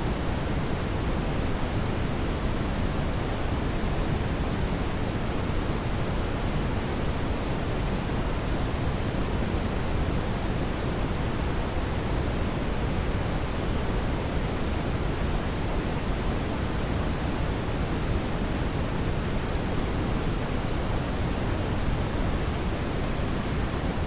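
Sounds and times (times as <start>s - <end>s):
brown noise rumbling hiss: 0.0s - 24.0s.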